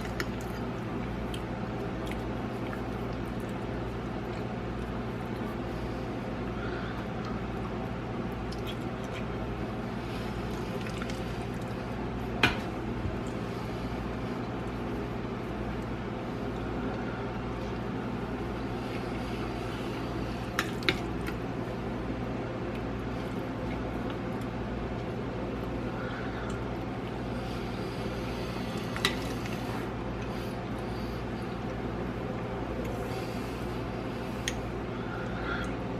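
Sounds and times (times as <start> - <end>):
wet chewing mouth sounds: 0.0 - 5.7, 8.3 - 9.6
steady low hum: 0.0 - 35.9.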